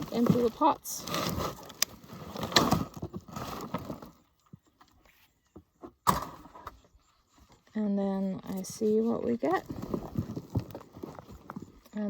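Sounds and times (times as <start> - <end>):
soil sliding and rustling: 0.0 - 4.2.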